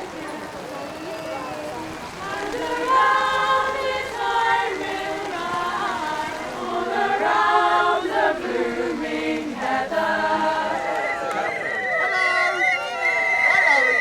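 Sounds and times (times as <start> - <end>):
choir singing a cappella: 2.1 - 11.8.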